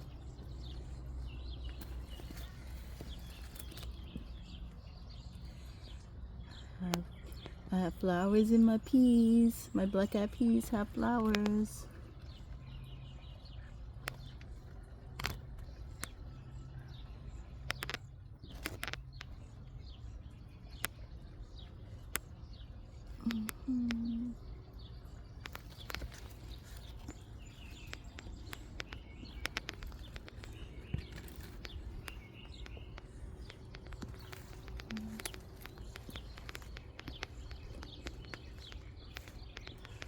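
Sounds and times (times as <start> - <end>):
low background rumble: 0.0 - 40.0
small birds chirping: 0.0 - 40.0
sharp clicks and rustles: 0.8 - 5.6, 17.5 - 19.6, 25.0 - 40.0.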